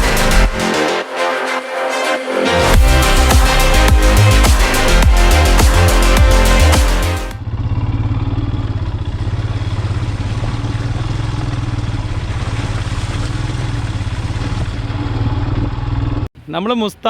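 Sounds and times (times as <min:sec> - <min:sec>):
electronic music: 0:00.0 - 0:07.4
motorcycle engine running: 0:02.7 - 0:16.3.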